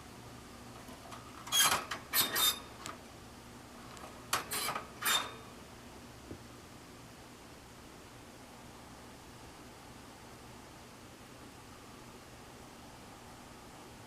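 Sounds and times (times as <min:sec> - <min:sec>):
rustling and clinking of metal cage: 0:00.8 - 0:03.0, 0:04.0 - 0:05.5.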